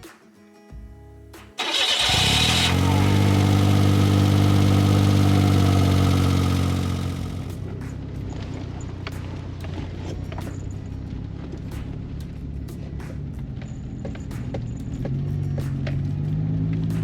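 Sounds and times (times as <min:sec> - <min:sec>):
engine cranking and starting: 0:01.6 - 0:07.8
engine idling: 0:01.6 - 0:09.1.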